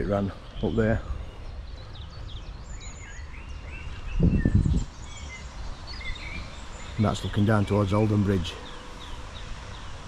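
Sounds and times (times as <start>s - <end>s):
small birds singing and chirping: 0.0s - 10.0s.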